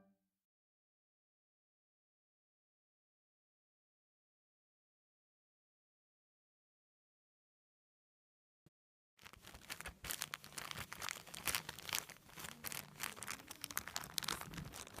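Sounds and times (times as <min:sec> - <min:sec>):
slime squished crackling: 0:09.2 - 0:15.0.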